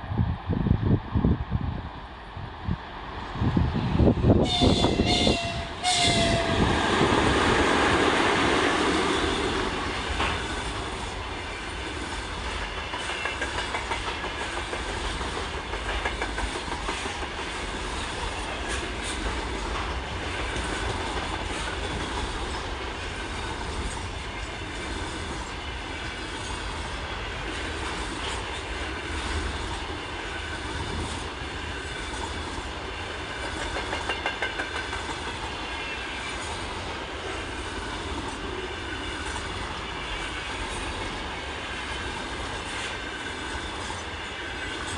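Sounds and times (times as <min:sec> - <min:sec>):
train horn blast: 0:04.4 - 0:06.8
train wheels clicking over rail joints: 0:04.4 - 0:44.9.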